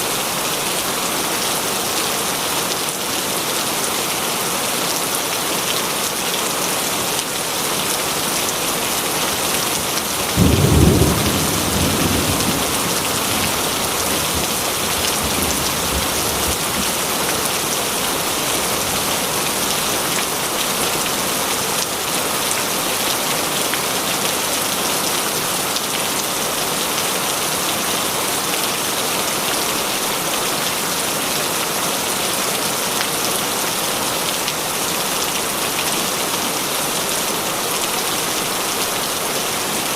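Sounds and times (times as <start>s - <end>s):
heavy rain falling: 0.0s - 39.9s
thunder clap rumbling: 10.3s - 17.0s.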